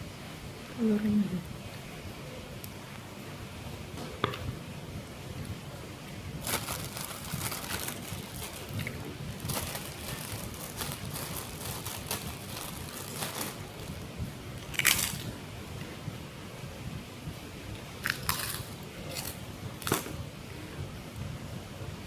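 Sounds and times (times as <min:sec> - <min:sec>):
crisp bites and chewing: 0:14.6 - 0:15.3, 0:18.0 - 0:20.0.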